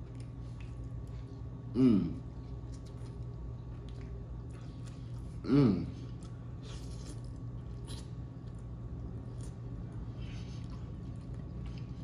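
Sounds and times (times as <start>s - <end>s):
wet chewing and mouth clicks: 0.0s - 1.4s, 2.5s - 5.4s
person humming mm: 1.7s - 2.2s, 5.4s - 6.0s.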